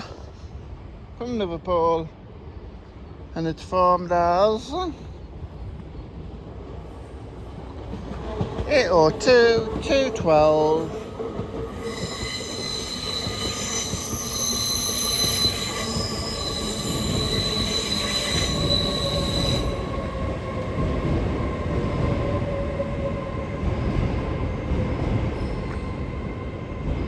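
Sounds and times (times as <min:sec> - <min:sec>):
low rumble of train: 0:00.0 - 0:27.0
train brakes squealing: 0:08.7 - 0:20.2, 0:25.3 - 0:26.2.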